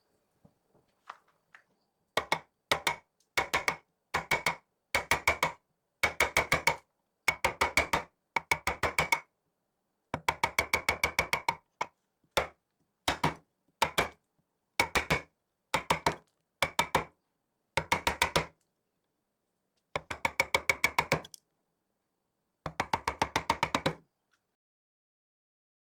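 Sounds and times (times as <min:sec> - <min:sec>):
rapid taps on wooden percussion: 0:02.2 - 0:09.2, 0:12.4 - 0:14.1, 0:17.8 - 0:18.5.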